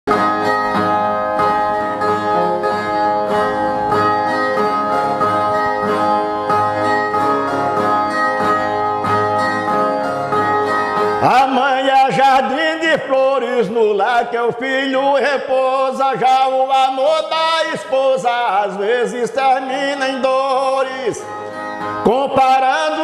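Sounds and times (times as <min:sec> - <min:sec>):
plucked strummed viola: 0:00.1 - 0:12.9, 0:19.8 - 0:23.0
man singing: 0:11.0 - 0:23.0.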